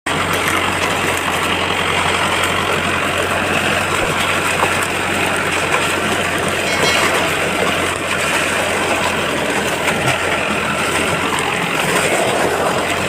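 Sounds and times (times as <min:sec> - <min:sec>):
diesel engine running: 0:00.1 - 0:13.0.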